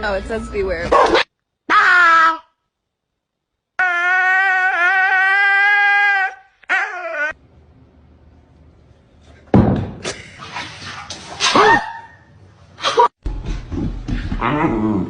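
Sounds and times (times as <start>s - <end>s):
dog howling: 3.8s - 7.4s.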